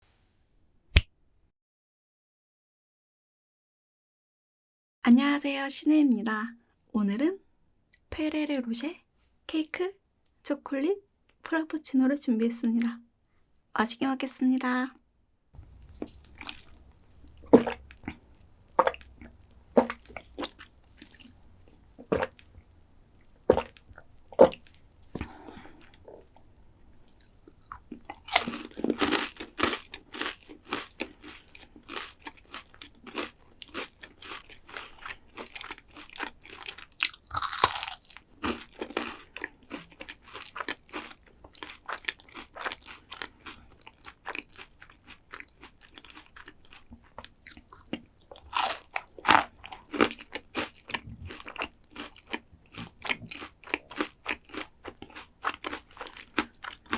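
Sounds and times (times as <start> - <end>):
crunching and chewing dessert: 15.7 - 22.6, 27.0 - 56.9.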